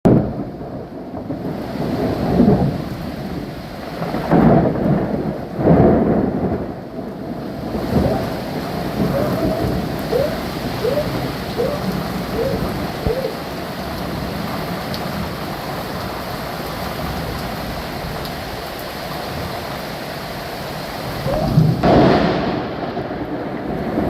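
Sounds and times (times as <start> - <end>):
rolling thunder: 0.1 - 14.6, 21.1 - 24.0
steady rain: 0.1 - 24.0.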